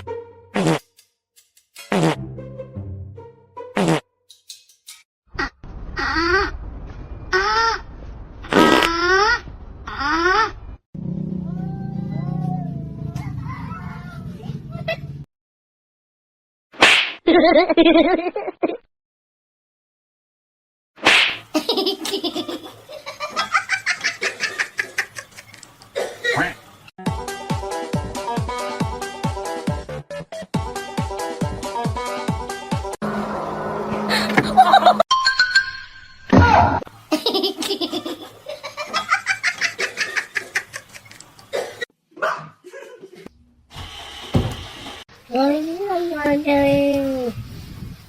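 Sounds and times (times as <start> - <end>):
person laughing hard: 34.0 - 35.0.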